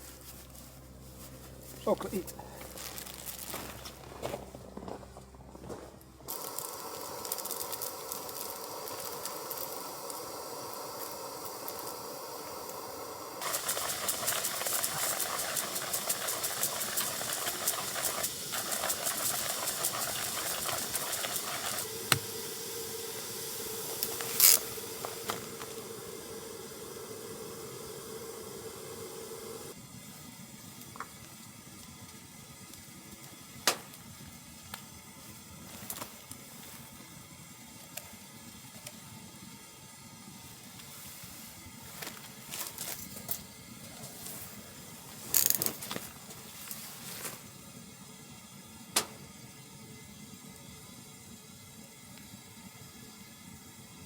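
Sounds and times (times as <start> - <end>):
wood stove hissing and crackling: 0.0 - 54.0
sharp snaps: 49.0 - 49.2.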